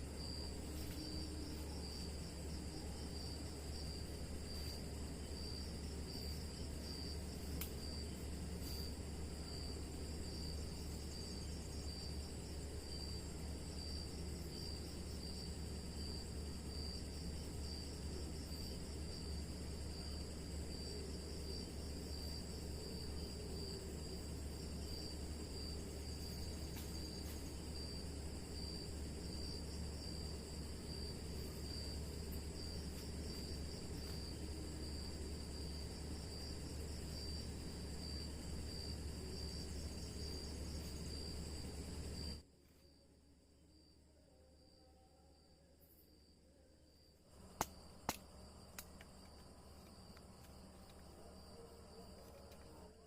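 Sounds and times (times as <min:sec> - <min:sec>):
low hum: 0:00.0 - 0:42.4
insects trilling: 0:00.0 - 0:43.0, 0:43.6 - 0:53.0
background hiss: 0:00.0 - 0:53.0
crickets chirping: 0:00.0 - 0:53.0.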